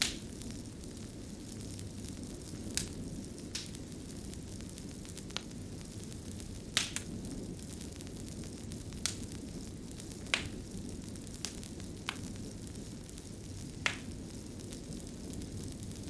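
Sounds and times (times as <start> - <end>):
fire burning rumble: 0.0 - 16.0
fire crackling pops: 0.0 - 16.0.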